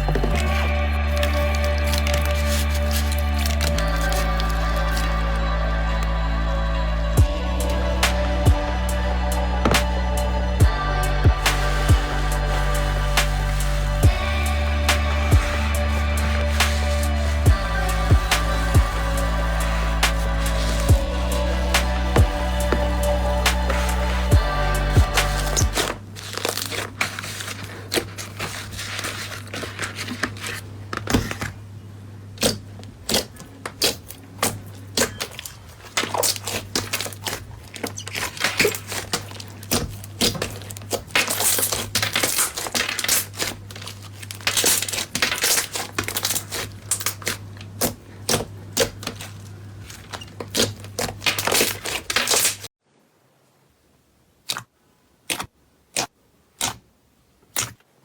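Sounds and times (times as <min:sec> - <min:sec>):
steady low hum: 0:00.0 - 0:26.2.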